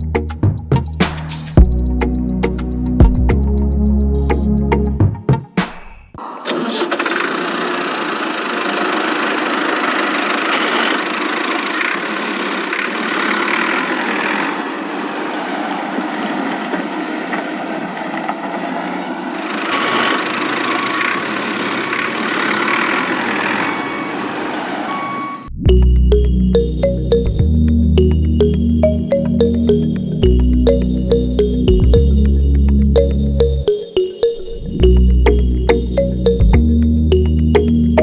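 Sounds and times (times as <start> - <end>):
small motor whirring: 6.2 - 15.5, 19.3 - 25.4
faint short beeps: 23.7 - 25.5.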